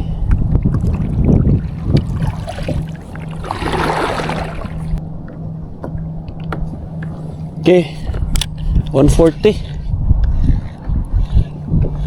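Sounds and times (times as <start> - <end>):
wind rumble on microphone: 0.0 - 12.0
paddle strokes through water: 0.2 - 7.6.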